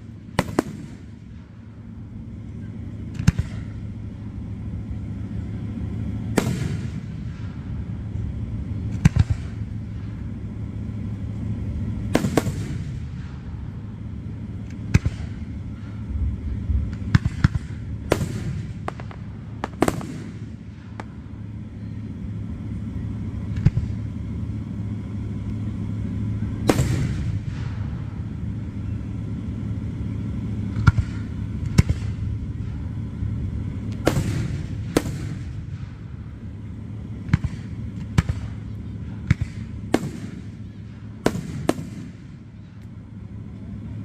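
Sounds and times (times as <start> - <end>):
steady low rumble: 0.0 - 44.0
fireworks bangs: 0.3 - 1.2, 12.1 - 13.5, 16.8 - 21.2, 26.6 - 28.0, 34.0 - 36.0, 39.2 - 42.3.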